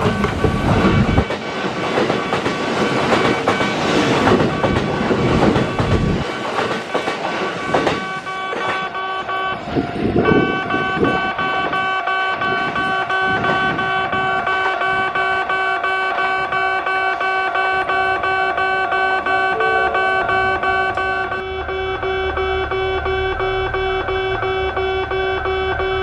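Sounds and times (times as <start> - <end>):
train wheels clattering: 0.0 - 11.8
background music with held notes: 19.4 - 21.4.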